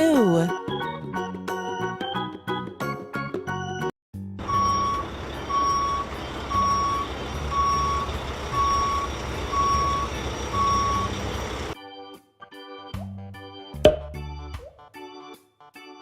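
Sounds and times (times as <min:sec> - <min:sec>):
low engine rumble: 0:04.4 - 0:11.8
truck reversing alarm beeping: 0:04.4 - 0:11.8.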